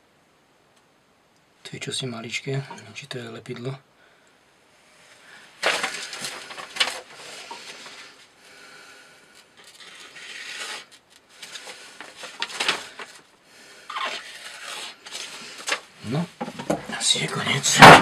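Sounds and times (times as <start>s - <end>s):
objects moved on hard surface: 5.5s - 8.2s, 9.3s - 13.3s, 13.9s - 17.0s.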